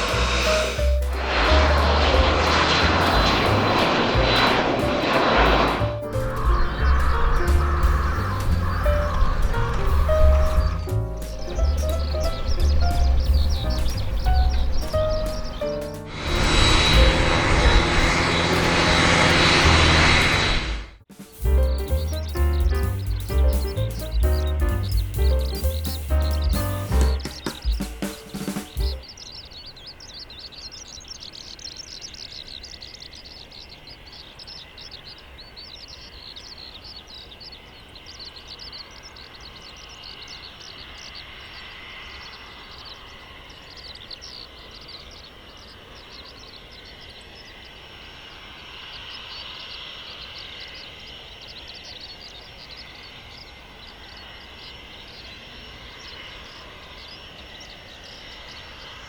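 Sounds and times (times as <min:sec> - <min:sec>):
jet engines whining: 0:00.0 - 0:29.1
small animals chirping: 0:05.8 - 0:17.2, 0:21.2 - 0:41.2.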